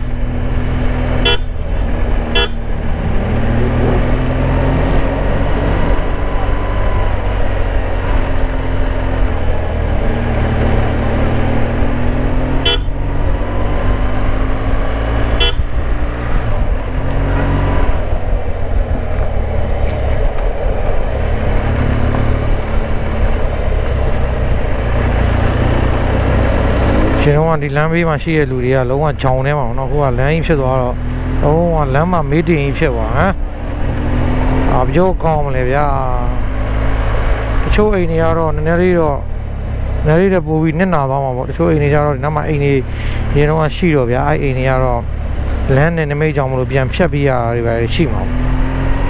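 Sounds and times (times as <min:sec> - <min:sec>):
motorcycle engine running: 0:00.0 - 0:04.1, 0:05.0 - 0:27.0
road and wind noise: 0:00.0 - 0:49.0
short horn toots: 0:02.3 - 0:02.6, 0:12.6 - 0:13.0, 0:15.4 - 0:15.7.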